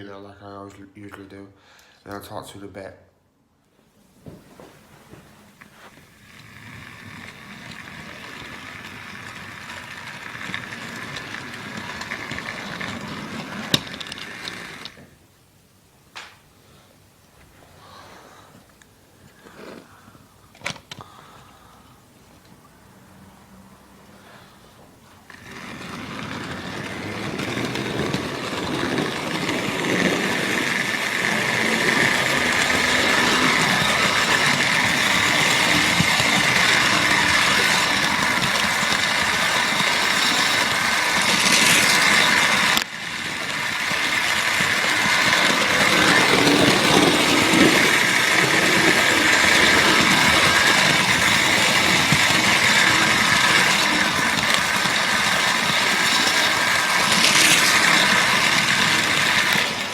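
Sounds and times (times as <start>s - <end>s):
model train rumbling on track: 5.9s - 15.1s, 24.2s - 59.9s.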